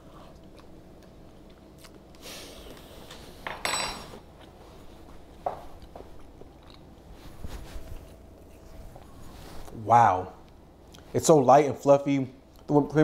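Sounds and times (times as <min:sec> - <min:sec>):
person chewing cake: 0:00.0 - 0:03.1, 0:04.3 - 0:09.8.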